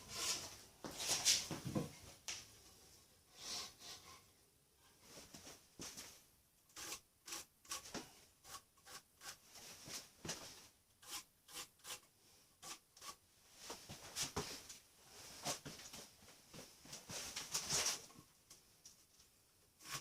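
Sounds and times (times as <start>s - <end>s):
faint scraping strokes: 0.0s - 1.5s, 6.8s - 14.3s, 19.8s - 20.0s.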